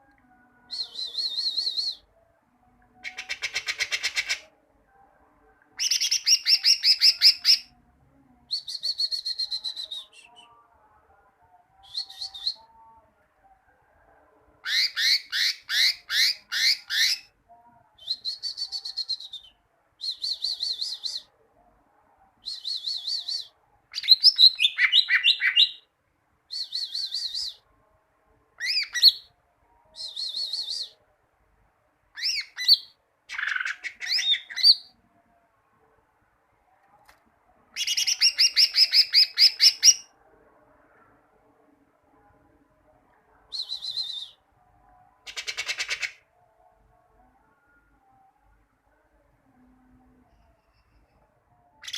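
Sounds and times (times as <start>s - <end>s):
bird singing high chirps: 37.8s - 40.1s.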